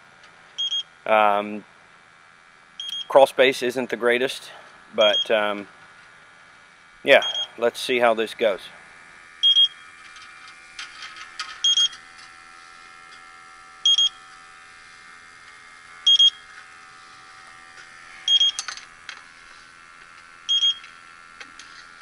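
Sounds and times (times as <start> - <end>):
steady high hum: 0.0 - 22.0
leak detector beeping: 0.6 - 1.0, 2.8 - 3.2, 5.0 - 5.4, 7.2 - 7.6, 9.4 - 10.0, 11.6 - 12.1, 13.8 - 14.4, 16.0 - 16.6, 18.2 - 18.8, 20.4 - 21.0.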